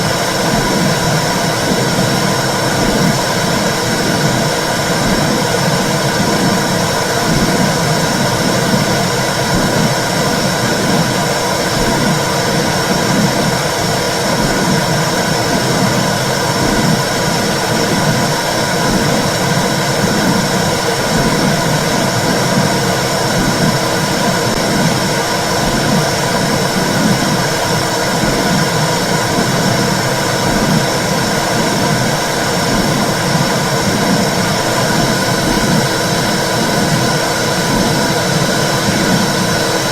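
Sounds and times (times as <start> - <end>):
low rhythmic heartbeat pulse: 0.0 - 39.9
steady whooshing noise: 0.0 - 39.9.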